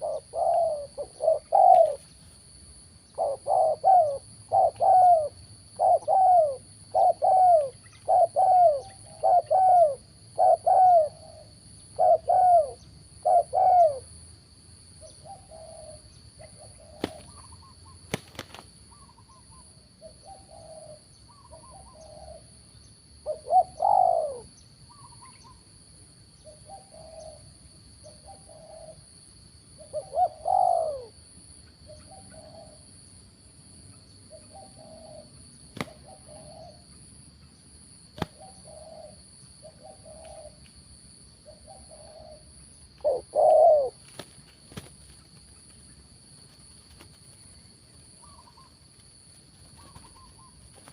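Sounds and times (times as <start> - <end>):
doves cooing: 0.0 - 2.1, 3.2 - 14.1, 15.2 - 19.6, 23.2 - 25.6, 26.7 - 27.5, 29.8 - 31.2, 34.3 - 36.8, 41.5 - 44.9, 49.6 - 50.9.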